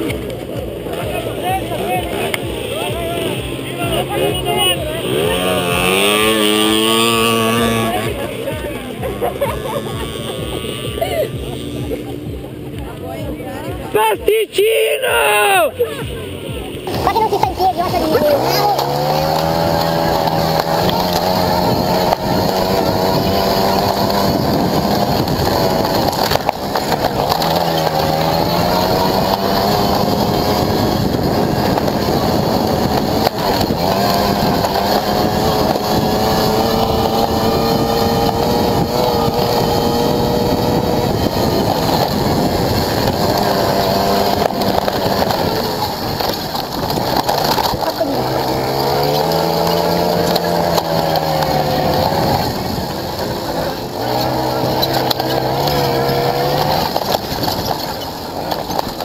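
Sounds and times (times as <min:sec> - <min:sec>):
motorcycle engine at speed: 0:00.0 - 0:14.0, 0:15.4 - 0:59.0
wind rush: 0:19.2 - 0:58.4.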